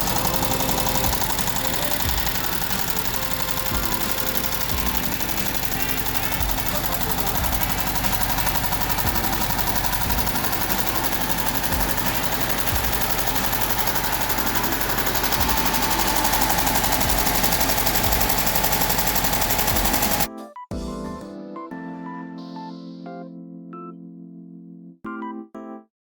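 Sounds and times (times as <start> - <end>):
car engine running: 0.0 - 20.3
cooling fan whine: 0.0 - 20.3
piano music: 0.0 - 25.9.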